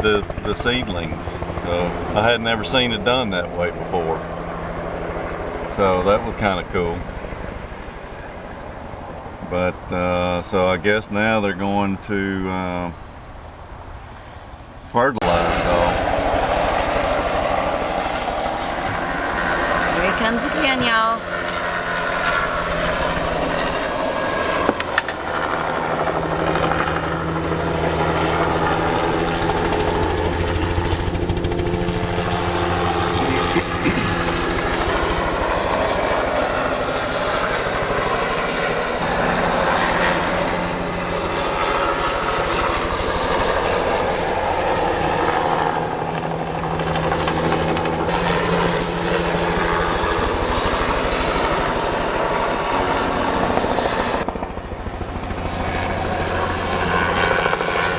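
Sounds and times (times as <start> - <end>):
helicopter flying: 0.0 - 57.9.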